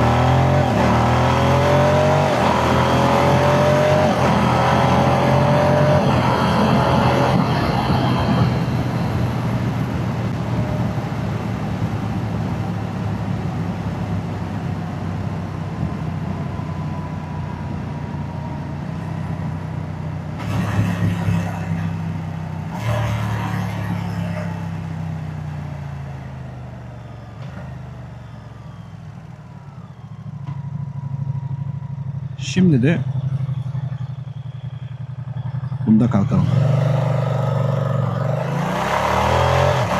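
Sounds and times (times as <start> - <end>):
motorcycle engine running: 29.6 - 38.2.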